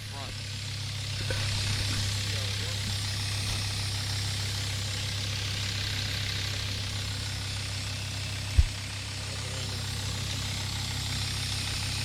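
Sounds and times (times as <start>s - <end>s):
van engine idling: 0.0s - 12.0s
short low thump: 8.5s - 8.8s.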